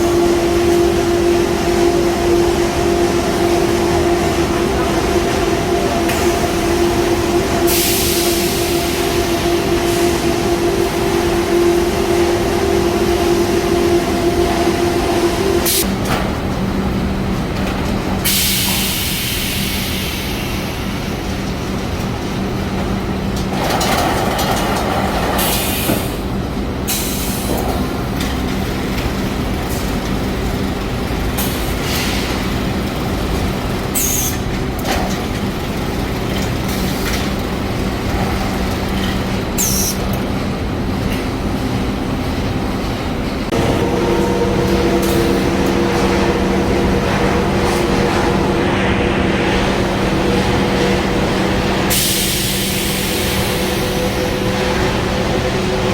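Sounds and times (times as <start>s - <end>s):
steady tones: 0.0s - 15.9s, 43.5s - 55.9s
conveyor motor hum and rumble: 0.0s - 55.9s.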